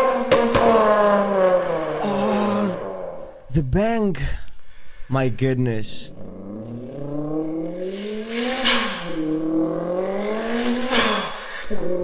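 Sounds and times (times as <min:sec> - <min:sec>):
vocal imitation of car engine: 0:00.0 - 0:03.7, 0:05.8 - 0:12.0
hissing turbo blow-off imitation: 0:06.5 - 0:12.0.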